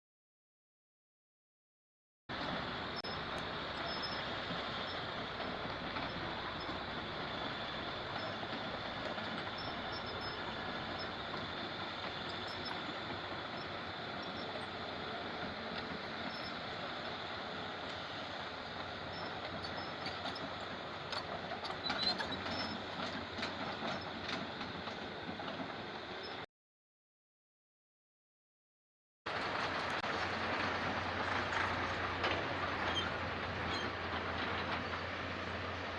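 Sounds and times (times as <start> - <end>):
hydraulic excavator running: 2.3 - 26.4, 29.3 - 35.9.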